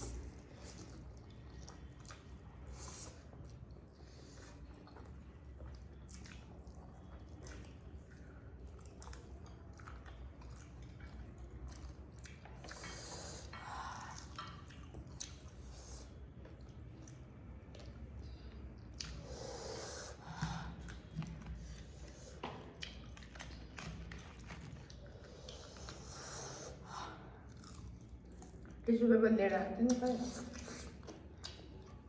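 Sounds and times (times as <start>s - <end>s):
person chewing food: 0.0s - 28.8s, 29.9s - 32.0s
wet mouth clicks and smacks: 22.4s - 24.3s, 29.8s - 32.0s.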